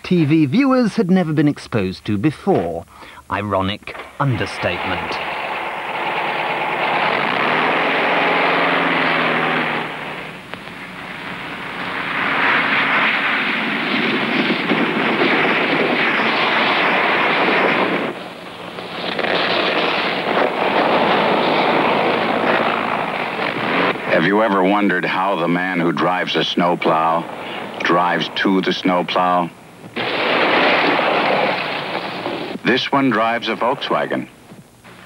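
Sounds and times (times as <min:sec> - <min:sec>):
steady rushing noise: 0:03.9 - 0:33.9
car engine running: 0:04.7 - 0:12.4.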